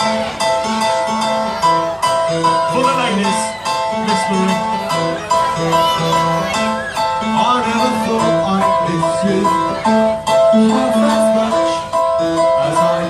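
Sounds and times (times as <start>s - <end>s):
band playing melody over bass: 0.0s - 13.0s.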